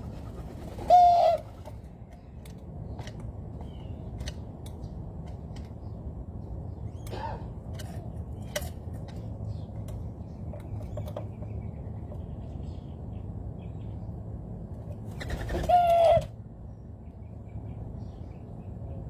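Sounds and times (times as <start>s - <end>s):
loud steady bird call: 0.0s - 1.7s
faint bird calls and clicks: 0.6s - 6.0s, 6.9s - 12.8s.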